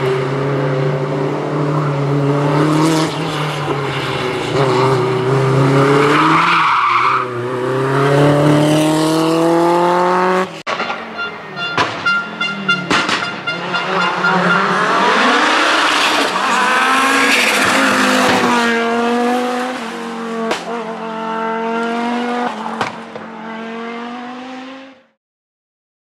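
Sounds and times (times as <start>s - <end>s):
rally car engine revving: 0.0s - 25.1s
sharp cracks: 12.8s - 13.5s.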